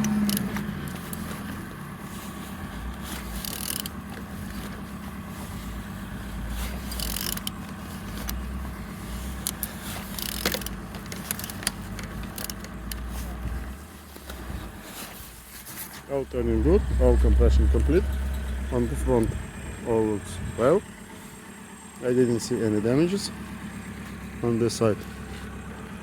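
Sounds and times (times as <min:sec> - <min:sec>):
engine mechanical clicks and knocks: 0:00.0 - 0:26.0
steady low hum: 0:16.0 - 0:22.0.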